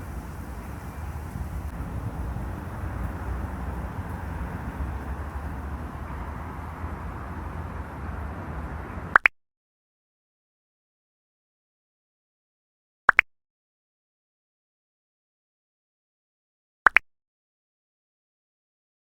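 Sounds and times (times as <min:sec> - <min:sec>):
low outdoor rumble: 0:00.0 - 0:09.2.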